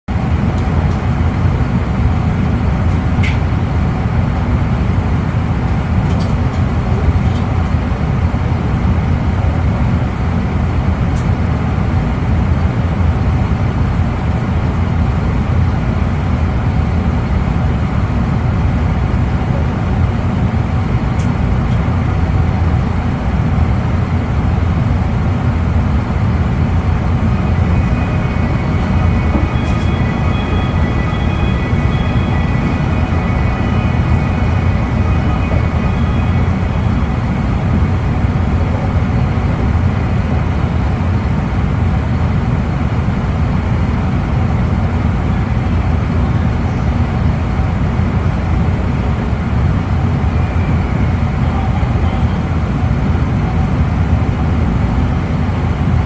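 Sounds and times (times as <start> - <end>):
train cabin rumble: 0.1 - 56.0
high steady tones: 26.0 - 38.6.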